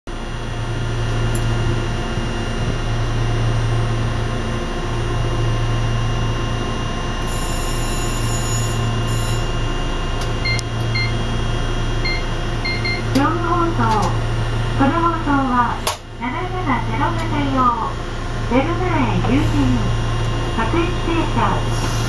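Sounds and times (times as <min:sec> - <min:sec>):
short electronic beeps: 0:10.4 - 0:11.2, 0:12.0 - 0:13.1.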